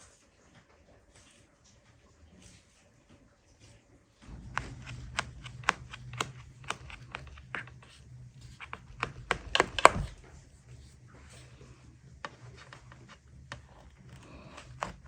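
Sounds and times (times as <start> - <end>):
low steady rumble: 4.2 - 15.0
knife chopping on wooden board: 4.3 - 7.8, 8.5 - 10.2, 12.3 - 15.0.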